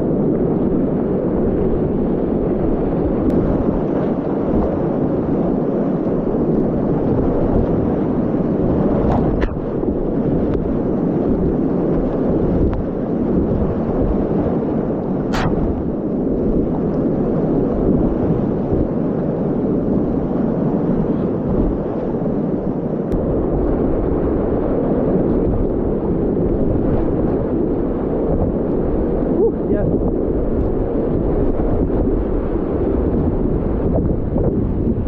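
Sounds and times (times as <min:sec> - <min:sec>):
water buffeting microphone: 0:00.0 - 0:35.0
short sharp click: 0:15.3 - 0:15.6.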